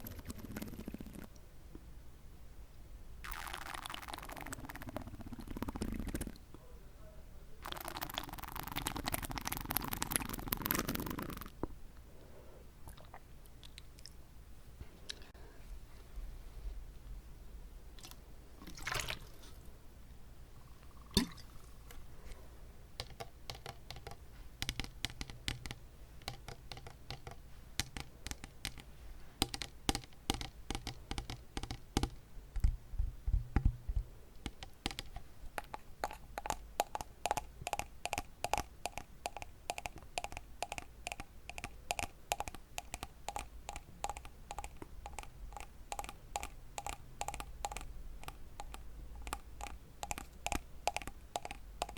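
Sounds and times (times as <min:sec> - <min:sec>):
wet mouth clicks and smacks: 0:12.8 - 0:14.2, 0:34.6 - 0:51.9.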